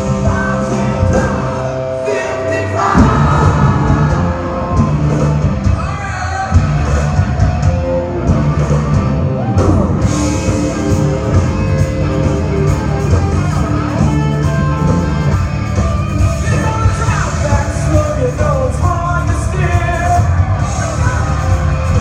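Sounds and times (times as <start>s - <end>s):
person singing: 0.0s - 6.7s
electric guitar: 0.0s - 22.0s
rock band playing: 0.0s - 22.0s.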